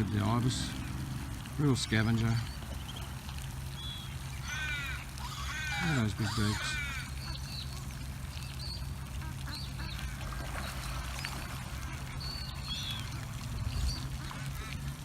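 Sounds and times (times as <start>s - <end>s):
ducks quacking: 0.0s - 15.0s
steady low hum: 0.0s - 15.0s
short high bird calls: 3.8s - 7.8s.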